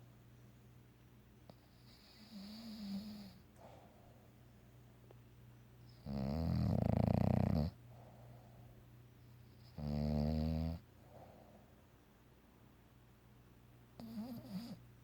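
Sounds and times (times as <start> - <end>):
dog snoring: 1.5 - 3.4, 5.9 - 7.8, 9.5 - 10.9, 14.0 - 14.8
quiet breathing: 1.5 - 5.2, 7.6 - 9.8, 10.7 - 12.0.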